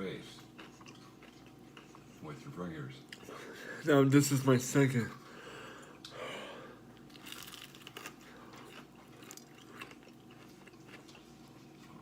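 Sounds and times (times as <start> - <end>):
person crunching and chewing: 0.4 - 2.1, 7.0 - 11.6.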